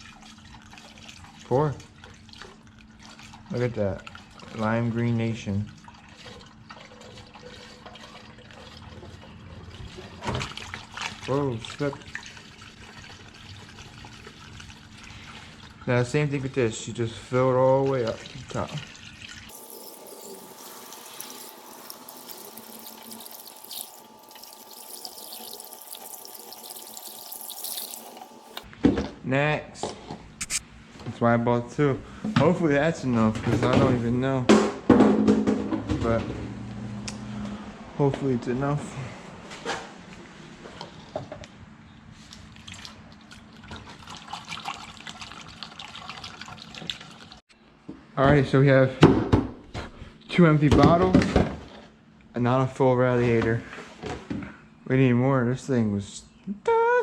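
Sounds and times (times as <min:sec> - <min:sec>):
liquid pouring and splashing: 0:00.0 - 0:16.0, 0:17.7 - 0:28.7, 0:42.2 - 0:47.4
liquid pouring through funnel: 0:17.9 - 0:28.6, 0:42.3 - 0:47.4.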